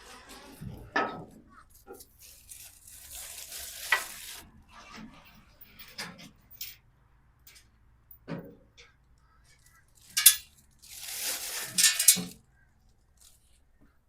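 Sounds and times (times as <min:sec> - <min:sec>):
rustling: 0:01.9 - 0:04.5, 0:09.7 - 0:12.4.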